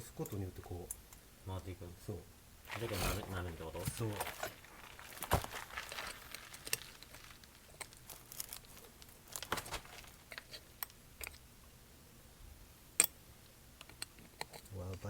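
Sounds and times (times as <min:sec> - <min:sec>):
rustling: 0:02.6 - 0:11.4
tools and parts clicking: 0:13.0 - 0:13.2, 0:13.8 - 0:15.0.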